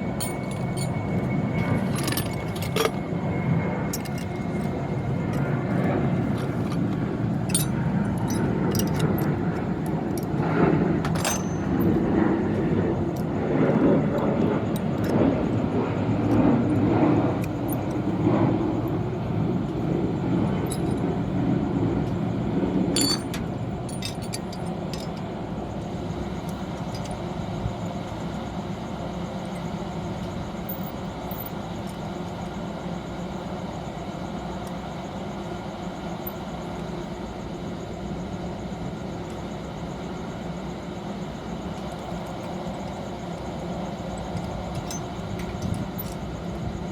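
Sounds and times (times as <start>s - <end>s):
low mechanical hum: 0.0s - 46.9s
metallic clinks and knocks: 0.2s - 3.1s, 3.9s - 4.7s, 6.4s - 9.4s, 11.0s - 12.0s, 23.0s - 25.2s, 44.3s - 46.2s.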